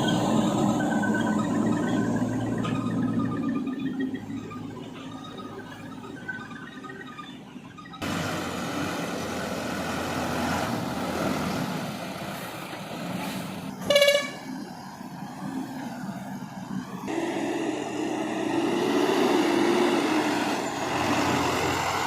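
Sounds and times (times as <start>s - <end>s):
diesel earthmoving machinery running: 0.0s - 22.0s
vehicle horn toot: 13.8s - 14.5s.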